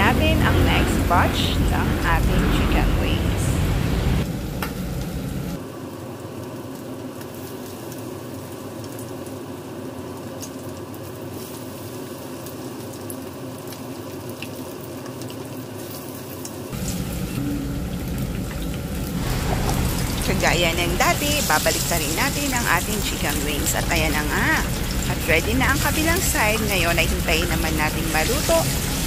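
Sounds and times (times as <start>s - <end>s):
low rumble: 0.0s - 5.6s, 16.7s - 29.0s
chicken wings deep-frying: 5.6s - 29.0s.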